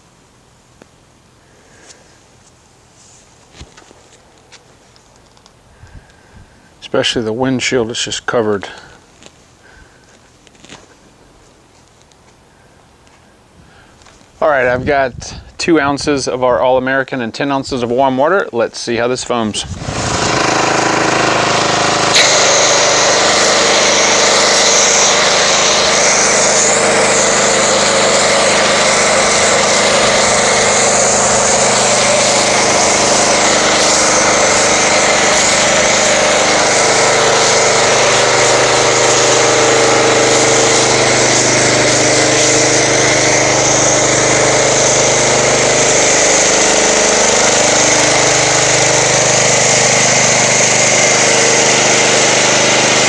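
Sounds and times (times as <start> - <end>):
pressure washer motor drone: 19.6 - 53.0
hiss of spray: 20.5 - 53.0.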